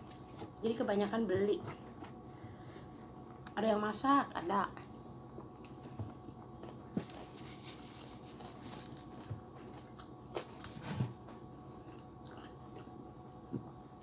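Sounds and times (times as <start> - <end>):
person chewing food: 1.7 - 3.6, 5.3 - 14.0.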